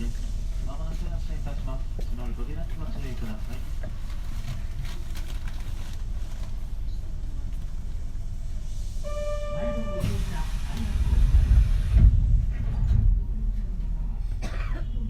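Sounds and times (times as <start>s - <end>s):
train running rumble: 0.0s - 15.0s
hiss: 9.8s - 12.2s.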